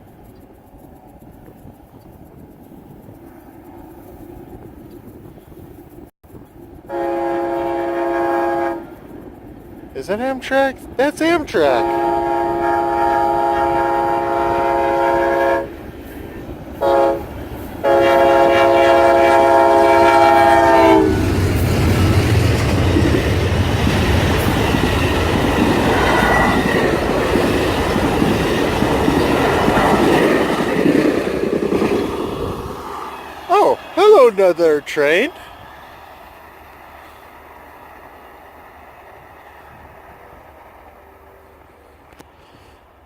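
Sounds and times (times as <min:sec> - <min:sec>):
train rumbling past: 0:00.0 - 0:43.0
locomotive air horn blasts: 0:06.9 - 0:09.0, 0:11.7 - 0:15.8, 0:16.8 - 0:21.2
wheels clattering over rail joints: 0:21.2 - 0:34.1.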